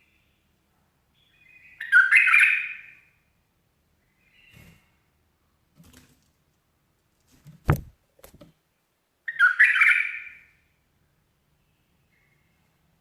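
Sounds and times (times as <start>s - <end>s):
sharp knock and taps: 7.6s - 8.5s.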